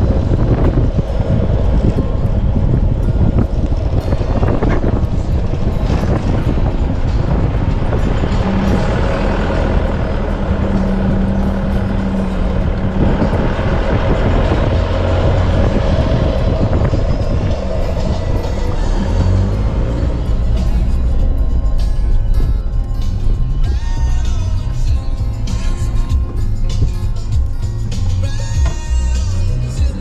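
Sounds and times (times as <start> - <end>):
vehicle engine and tyre rumble: 0.0 - 30.0.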